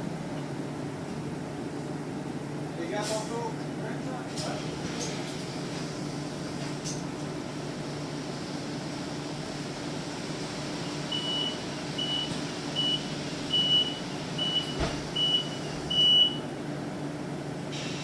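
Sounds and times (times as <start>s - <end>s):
bus cabin hum: 0.0s - 18.0s.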